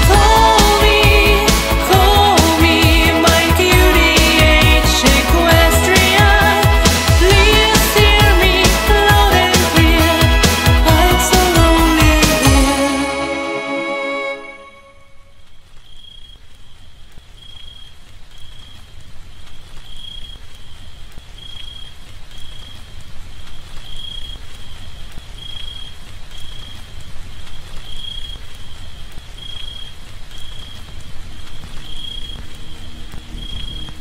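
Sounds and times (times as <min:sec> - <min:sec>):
low rushing noise: 0:32.4 - 0:34.0.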